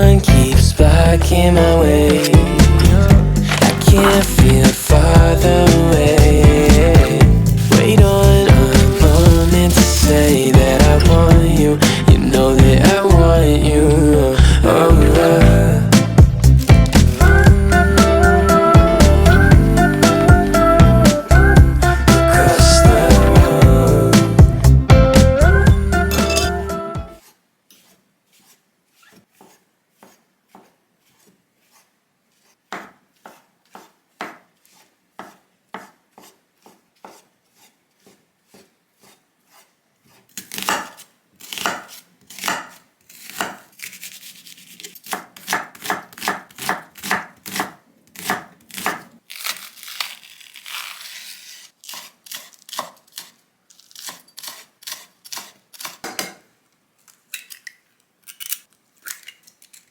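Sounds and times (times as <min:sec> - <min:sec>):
knife chopping on cutting board: 0:02.1 - 0:12.8, 0:32.7 - 0:34.5, 0:35.2 - 0:37.3, 0:40.4 - 0:43.7, 0:45.0 - 0:49.1.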